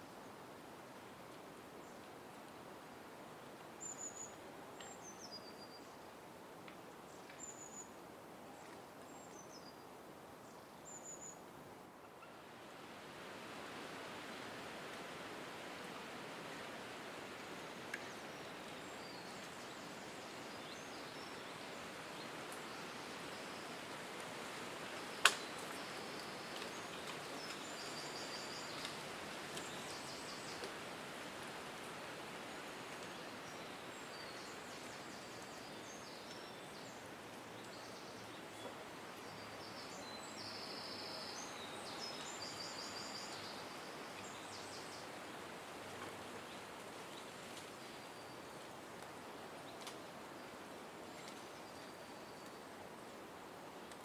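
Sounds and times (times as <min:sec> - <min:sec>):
steady outdoor hiss: 0:00.0 - 0:54.0
small birds chirping: 0:25.0 - 0:30.8.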